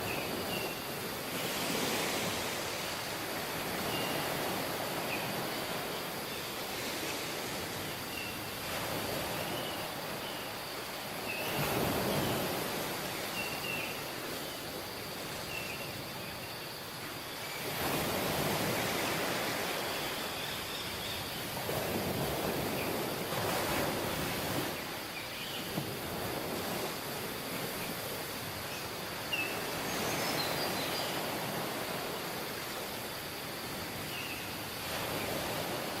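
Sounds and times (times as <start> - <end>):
waves breaking on shore: 0.0 - 36.0.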